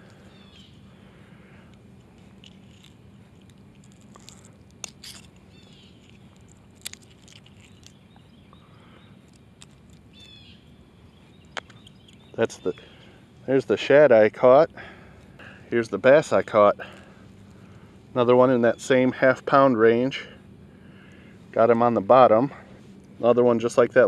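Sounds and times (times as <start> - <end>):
bird chirps: 0.1 - 1.0, 5.5 - 6.4, 7.5 - 9.4, 10.1 - 13.5
handling clicks and scrapes: 1.7 - 8.2.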